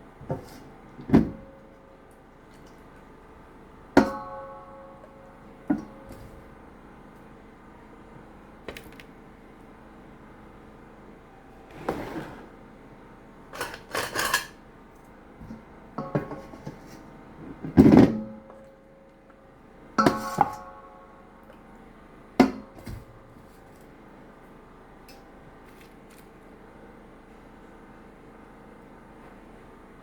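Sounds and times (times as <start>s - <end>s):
dishes clattering: 16.0s - 18.2s.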